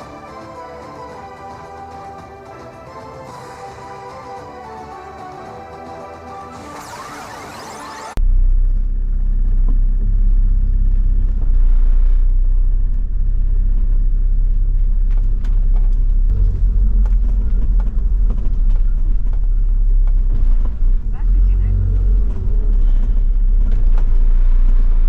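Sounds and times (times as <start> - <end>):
music: 0.0 - 8.2
diesel vehicle driving on dirt road: 8.2 - 25.0.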